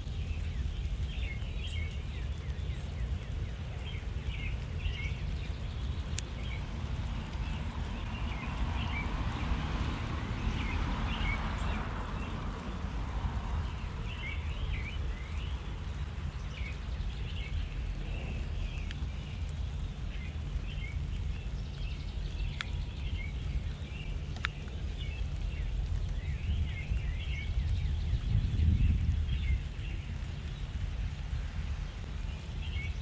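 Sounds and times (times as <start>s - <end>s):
small birds chirping: 0.0s - 33.0s
steady low rumble: 0.0s - 33.0s
sharp clicks: 24.3s - 24.8s.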